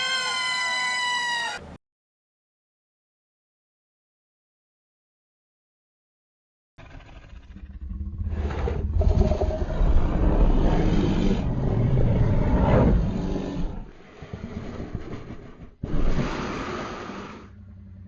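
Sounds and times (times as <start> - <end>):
large animal roaring: 6.8 - 18.0.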